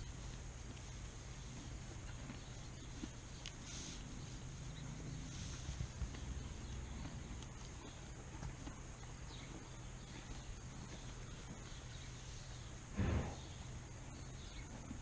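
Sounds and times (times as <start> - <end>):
steady low hum: 0.0 - 15.0
soft hoof knocks: 4.8 - 12.0.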